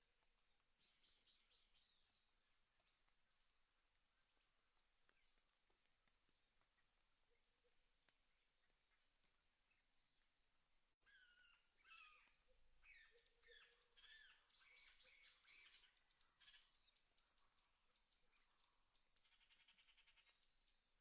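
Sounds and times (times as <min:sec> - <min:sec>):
rapid insect trill: 0:09.7 - 0:21.0.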